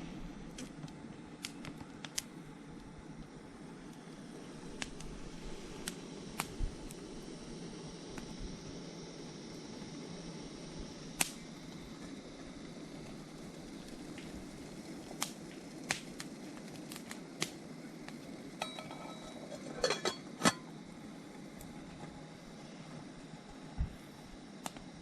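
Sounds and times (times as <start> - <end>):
steady hiss: 0.0 - 25.0
ringing clink: 18.6 - 20.6.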